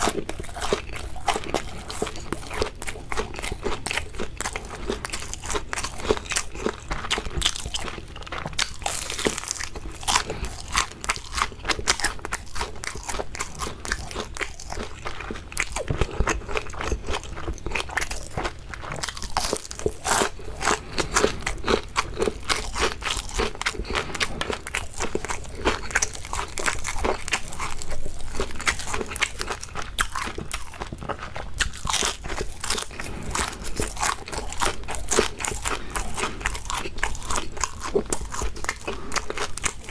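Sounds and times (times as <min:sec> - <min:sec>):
crunchy chewing: 0:00.0 - 0:39.9.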